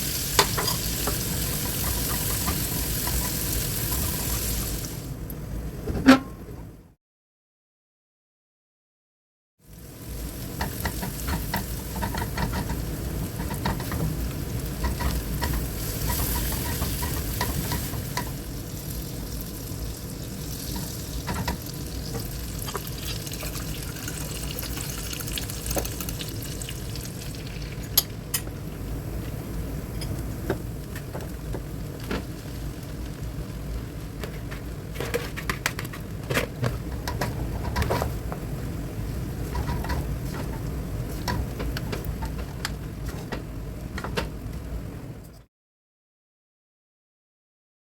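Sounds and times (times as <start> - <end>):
food sizzling in pan: 0.0 - 5.2, 9.6 - 34.9.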